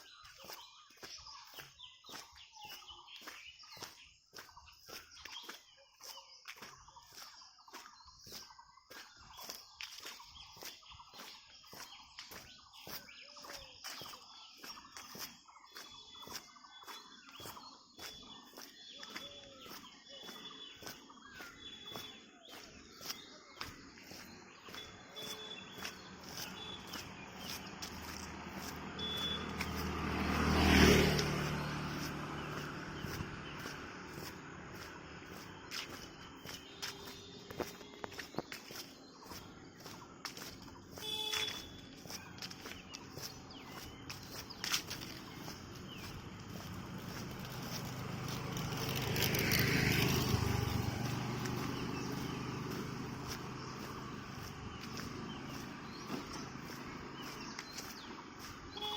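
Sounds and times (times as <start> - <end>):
footsteps: 0.0 - 58.9
vehicle passing by: 18.6 - 58.9.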